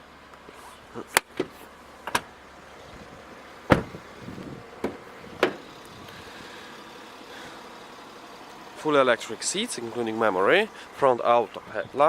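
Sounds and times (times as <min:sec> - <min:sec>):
car interior fittings clicking: 0:01.1 - 0:02.3, 0:03.7 - 0:06.0
low thud knock: 0:03.7 - 0:04.0.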